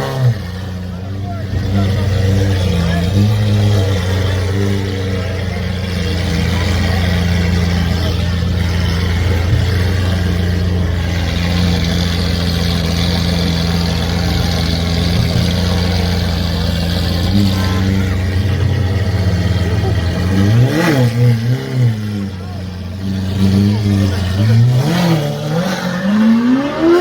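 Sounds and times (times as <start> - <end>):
car engine idling: 0.0 - 27.0
crowd noise: 0.0 - 27.0.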